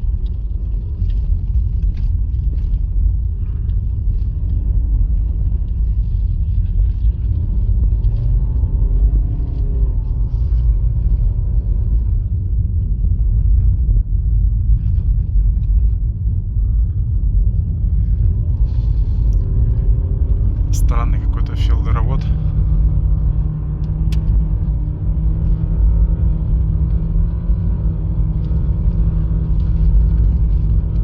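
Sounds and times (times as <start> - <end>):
car cabin low rumble: 0.0 - 31.0.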